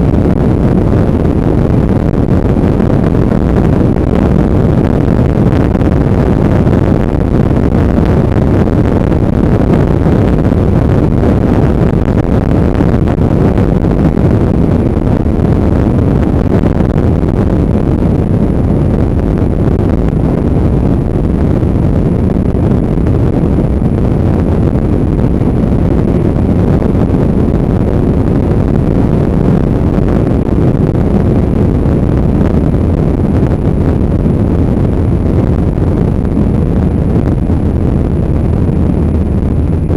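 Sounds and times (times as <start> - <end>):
wind rush on microphone: 0.0 - 39.9
motorcycle engine running: 30.2 - 39.9.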